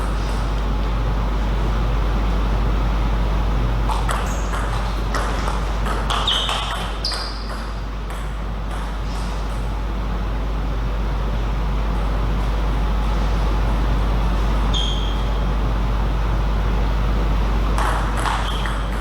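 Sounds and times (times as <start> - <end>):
low electrical hum: 0.0 - 19.0
short high squeaks: 6.1 - 7.4, 14.7 - 15.4.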